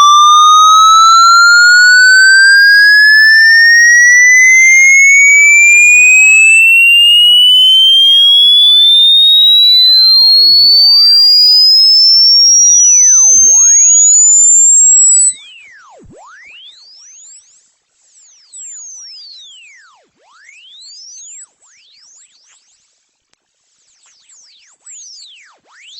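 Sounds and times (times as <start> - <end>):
faint gliding ghost tones: 0.0 - 7.8
piercing electronic tone rising: 0.0 - 15.4.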